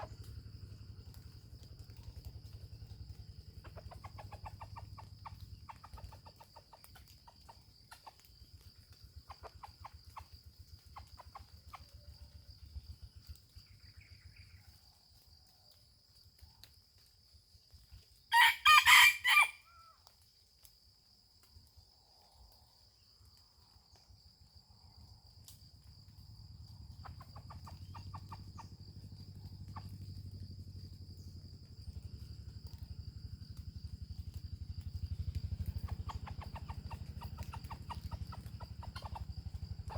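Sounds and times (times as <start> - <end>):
rooster crowing: 18.3 - 19.9.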